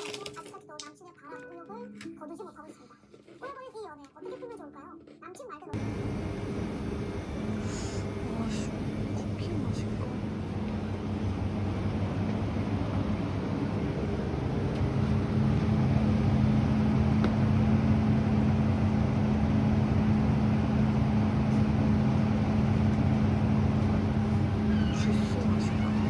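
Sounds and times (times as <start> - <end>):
low mechanical hum: 5.8 - 26.0.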